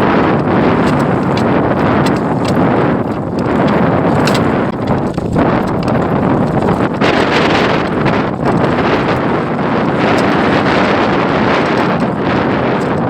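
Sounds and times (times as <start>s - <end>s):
wind buffeting microphone: 0.0s - 13.0s
light clicks and knocks: 0.8s - 11.0s.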